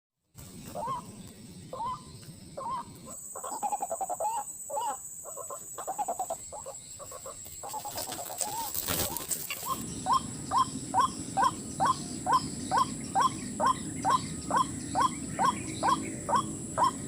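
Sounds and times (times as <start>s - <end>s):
waterhen calling: 0.6s - 1.1s, 1.7s - 17.0s
steady high-pitched tone: 9.6s - 17.0s.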